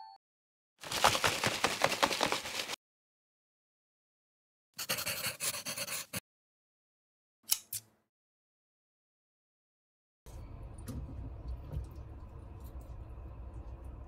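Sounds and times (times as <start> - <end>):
pencil scribbling on paper: 4.8 - 6.2.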